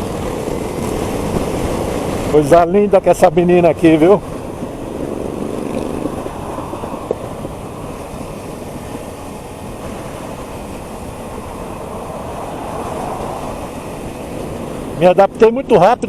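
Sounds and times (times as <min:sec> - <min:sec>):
wind noise on microphone: 0:00.0 - 0:02.6, 0:03.6 - 0:15.4
motorcycle engine running: 0:04.3 - 0:12.1.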